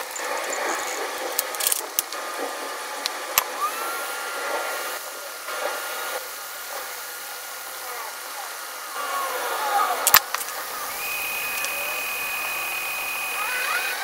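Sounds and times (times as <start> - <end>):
small tools clicking: 0.0 - 2.2, 10.0 - 10.6
hot air rushing: 0.0 - 14.0
thin steady whistle: 10.6 - 14.0.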